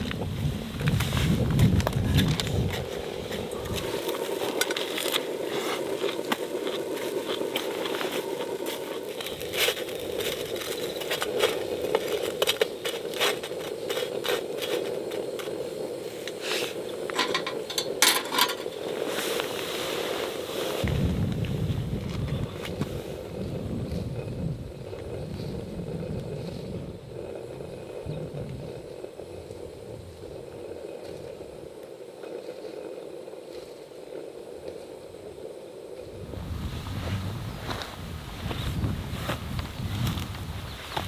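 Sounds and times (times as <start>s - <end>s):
campfire popping and snapping: 0.0s - 19.6s
fire hissing: 0.0s - 39.2s.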